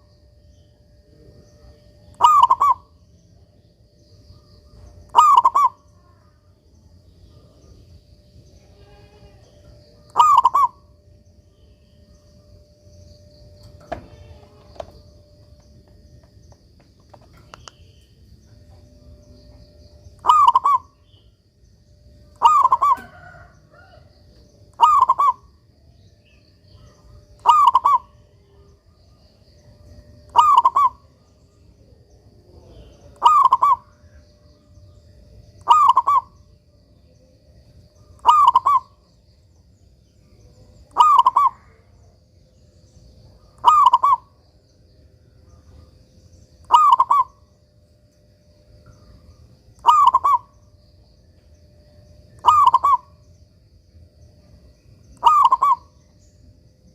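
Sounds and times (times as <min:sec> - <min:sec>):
dove cooing: 0:01.3 - 0:03.0, 0:04.7 - 0:06.2, 0:08.7 - 0:11.0, 0:18.5 - 0:21.2, 0:22.2 - 0:28.7, 0:29.8 - 0:31.3, 0:32.7 - 0:34.6, 0:35.6 - 0:36.6, 0:38.0 - 0:39.1, 0:40.7 - 0:41.9, 0:43.4 - 0:44.4, 0:46.6 - 0:47.5, 0:49.1 - 0:50.6, 0:52.3 - 0:53.2, 0:55.1 - 0:56.0.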